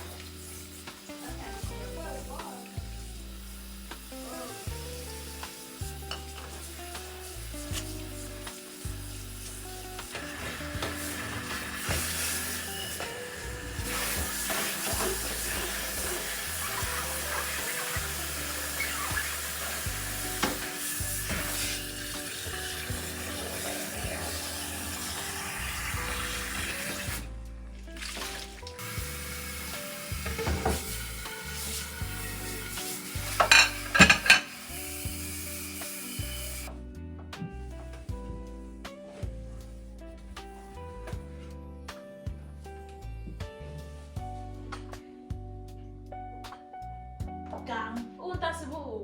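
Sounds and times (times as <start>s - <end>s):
food sizzling: 0.0s - 27.3s, 27.9s - 36.8s
soft background music: 0.0s - 49.0s
dishes clattering: 30.2s - 30.9s, 33.2s - 34.6s.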